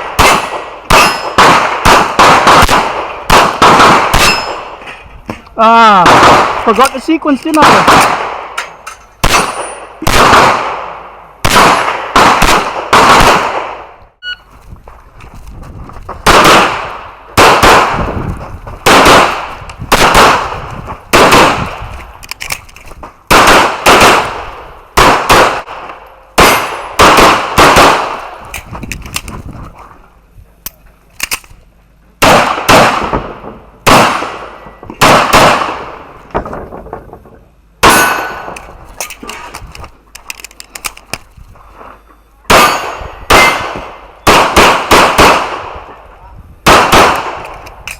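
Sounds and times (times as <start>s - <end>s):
handgun shots with echo: 0.0s - 4.7s, 42.5s - 45.6s.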